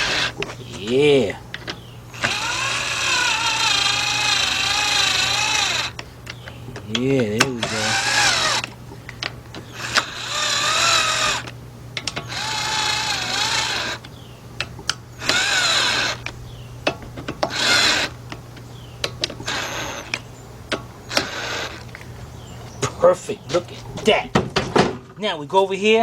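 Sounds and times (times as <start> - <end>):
power drill spinning in bursts: 0.0 - 0.4, 2.1 - 6.0, 7.6 - 8.7, 9.7 - 11.5, 12.2 - 14.0, 15.2 - 16.2, 17.5 - 18.2, 19.4 - 20.2, 21.1 - 21.8.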